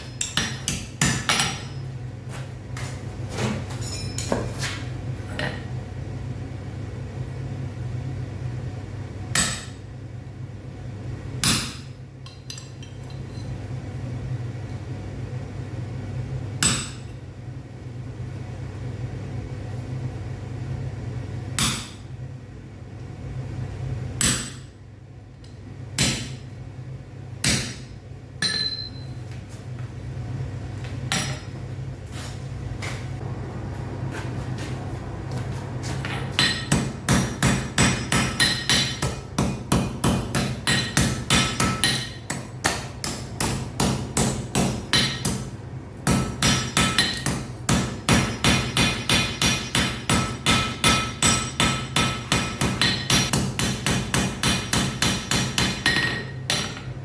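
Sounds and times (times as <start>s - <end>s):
hammer striking metal on anvil: 0.0s - 1.9s, 9.4s - 9.8s, 11.4s - 12.8s, 16.6s - 17.2s, 21.6s - 22.1s, 24.2s - 24.7s, 26.0s - 26.5s, 27.4s - 29.1s, 31.1s - 31.6s, 35.9s - 57.0s
low hum: 28.4s - 39.0s.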